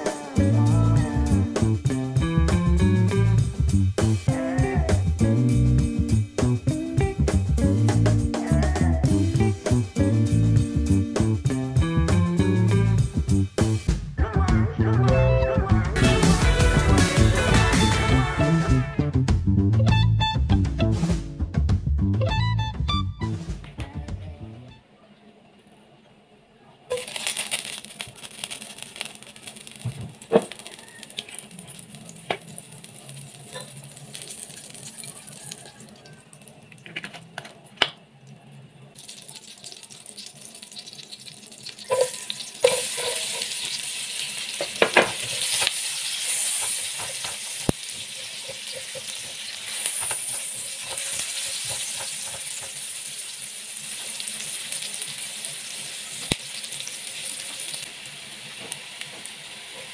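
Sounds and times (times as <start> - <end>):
onion frying loudly: 0.0 - 13.9, 16.0 - 19.2, 26.9 - 59.9
butter sizzling in a frying pan: 26.9 - 36.6, 39.0 - 59.9.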